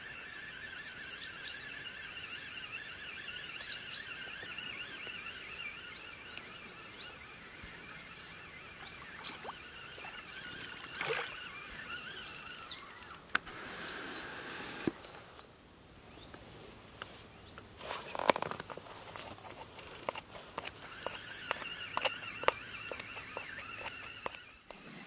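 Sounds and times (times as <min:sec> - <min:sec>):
high falling bird chirps: 0:00.0 - 0:14.4, 0:20.8 - 0:24.6
warbling bird chorus: 0:00.0 - 0:15.5, 0:20.6 - 0:24.6.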